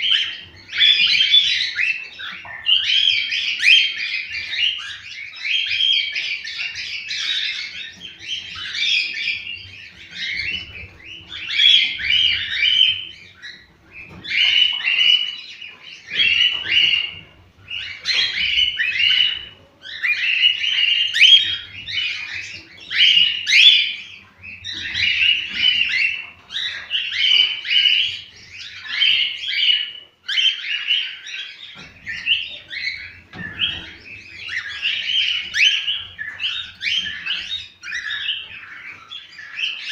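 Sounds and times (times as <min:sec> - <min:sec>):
cockatiels whistling: 0:00.0 - 0:39.9.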